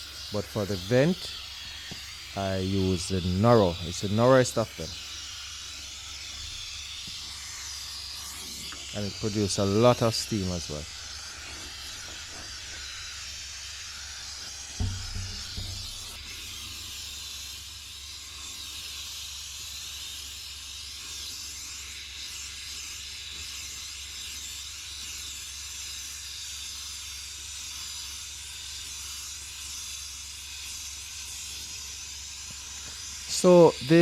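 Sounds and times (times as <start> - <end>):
steam cleaner hissing: 0.0 - 34.0
brief knocks: 14.8 - 16.1.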